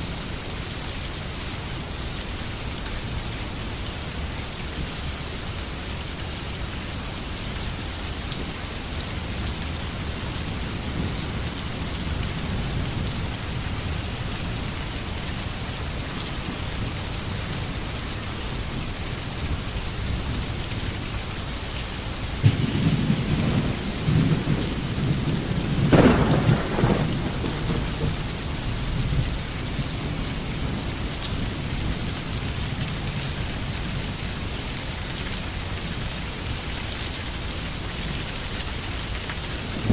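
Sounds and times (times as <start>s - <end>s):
steady rain falling: 0.0s - 39.9s
thunder rumbling: 22.4s - 33.2s, 39.7s - 39.9s.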